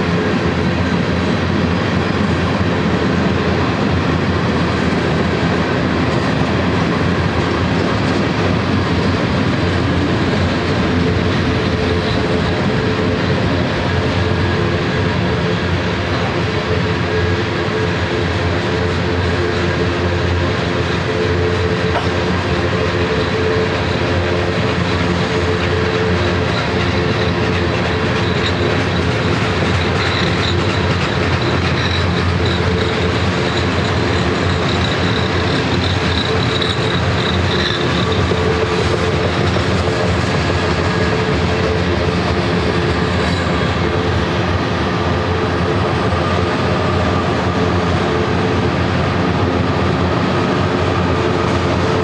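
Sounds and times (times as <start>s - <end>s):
steel wheels on rail: 0.0s - 52.0s
high-pitched wheel squeal: 21.0s - 48.4s.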